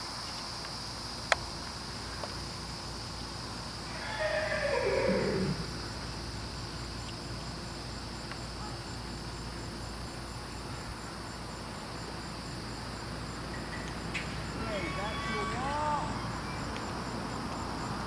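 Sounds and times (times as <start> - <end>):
insect chirring: 0.0 - 18.0
horse whinny: 3.9 - 5.7.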